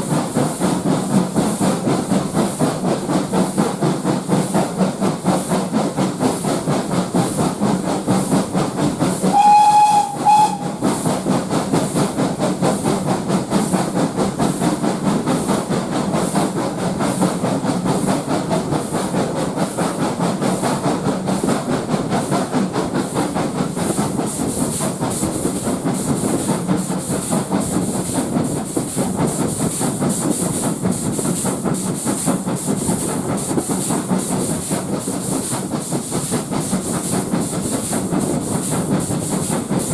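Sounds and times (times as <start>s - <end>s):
steam locomotive chuffing: 0.0s - 39.9s
steam whistle blast: 9.2s - 11.0s.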